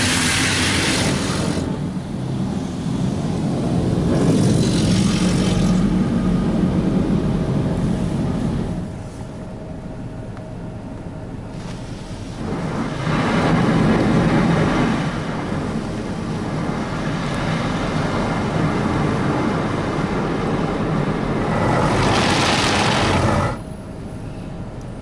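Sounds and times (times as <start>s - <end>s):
car wash water spray hissing: 0.0s - 6.6s, 11.5s - 23.6s.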